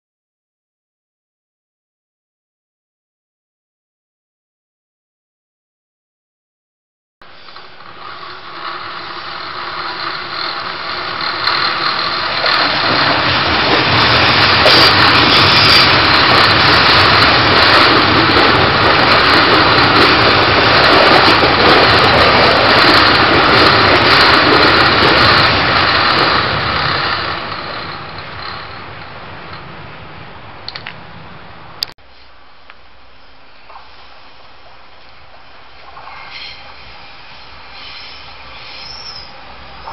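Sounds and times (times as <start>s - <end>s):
electric train passing: 7.2s - 31.8s, 33.0s - 39.9s.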